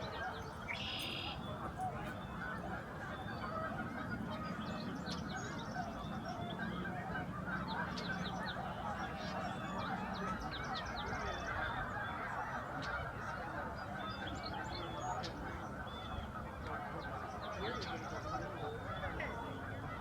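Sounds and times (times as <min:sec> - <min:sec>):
geese honking: 0:00.0 - 0:20.0
sharp single goose calls: 0:00.6 - 0:02.2.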